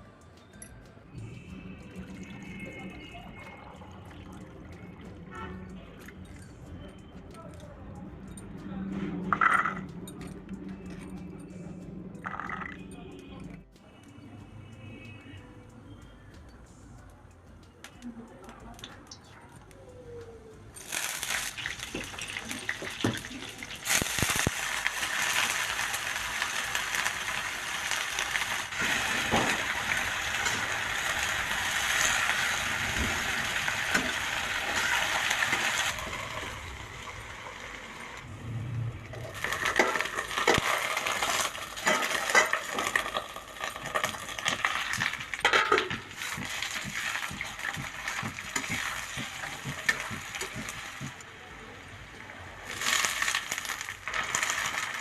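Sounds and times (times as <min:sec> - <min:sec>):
food sizzling in a pan: 0:20.8 - 0:51.2, 0:52.1 - 0:55.0
metal spoon scraping a pan: 0:39.3 - 0:51.1.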